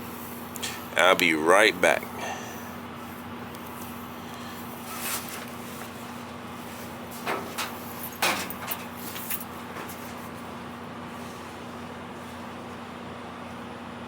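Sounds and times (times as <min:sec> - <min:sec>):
steady hum: 0:00.0 - 0:14.0
knocks and clatters: 0:07.2 - 0:10.2.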